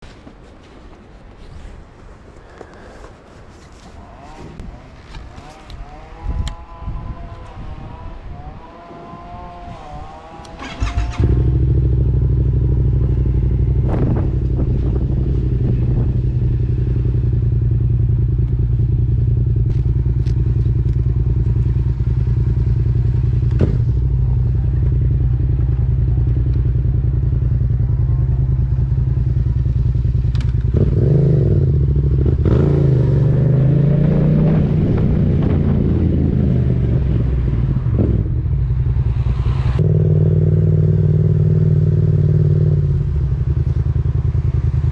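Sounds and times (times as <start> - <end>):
motorcycle engine idling and revving: 3.7 - 44.9.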